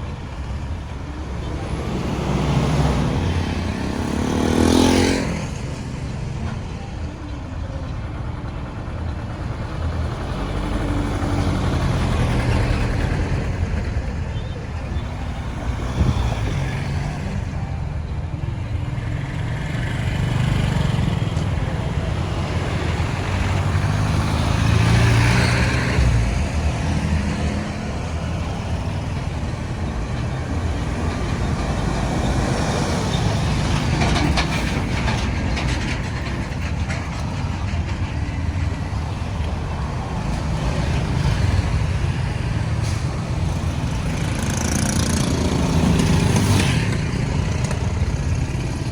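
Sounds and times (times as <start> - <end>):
road traffic rumble: 0.0 - 48.9
louder vehicle passing: 1.2 - 5.9, 19.1 - 38.0, 38.6 - 48.9.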